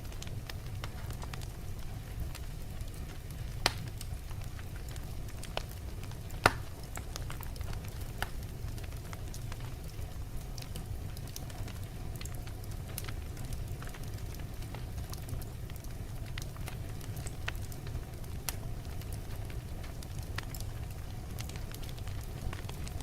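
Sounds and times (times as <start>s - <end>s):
wood fire crackling: 0.0s - 23.0s
sharp pops of fire: 2.3s - 9.0s.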